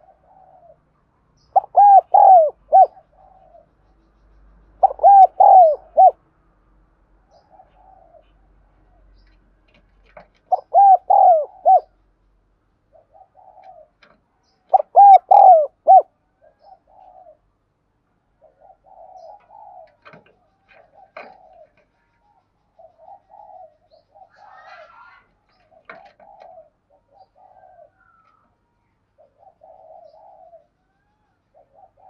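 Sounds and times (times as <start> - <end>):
dove cooing: 0.0 - 0.9, 1.5 - 3.8, 4.8 - 6.2, 7.3 - 9.2, 10.4 - 12.0, 12.9 - 17.5, 18.3 - 21.9, 22.7 - 32.0.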